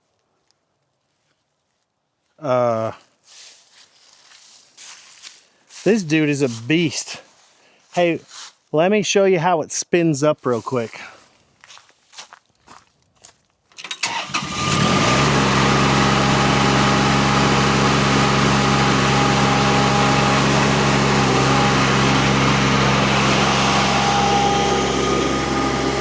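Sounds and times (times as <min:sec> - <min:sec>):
diesel engine under throttle: 0:13.9 - 0:26.0
mulcher whine: 0:14.0 - 0:26.0.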